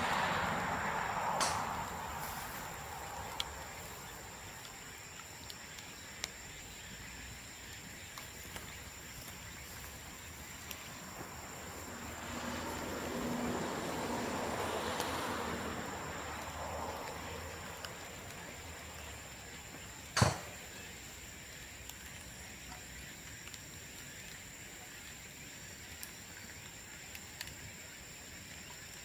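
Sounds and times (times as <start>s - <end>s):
low rush of flames: 0.0s - 29.0s
bamboo popping and crackling: 0.8s - 13.4s, 14.0s - 27.8s.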